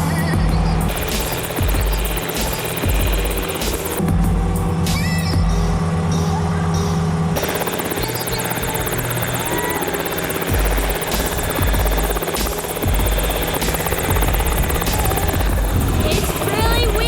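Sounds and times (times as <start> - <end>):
rotor downwash buffeting microphone: 0.8 - 17.0
helicopter engine and rotor: 0.9 - 4.8, 7.4 - 17.0.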